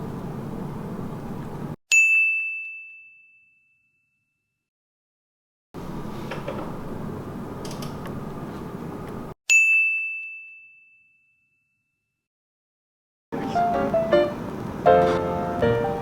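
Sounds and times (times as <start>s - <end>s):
bell-like ding: 1.9s - 4.5s, 9.5s - 12.0s.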